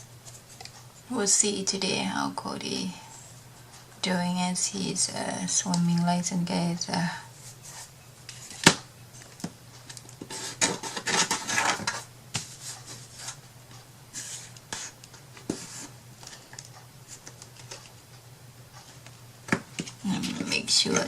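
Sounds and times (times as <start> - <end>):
rubbing and rustling: 10.2 - 13.5, 14.1 - 18.0.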